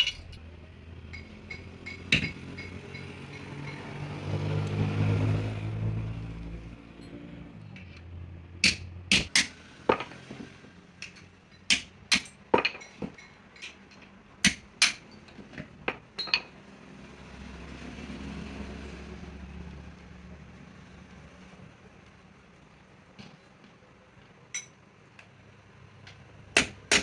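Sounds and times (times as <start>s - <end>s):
hand tools striking metal: 0.0s - 0.4s, 1.1s - 4.0s, 8.6s - 10.4s, 11.0s - 16.5s
low engine-like hum: 0.0s - 9.8s.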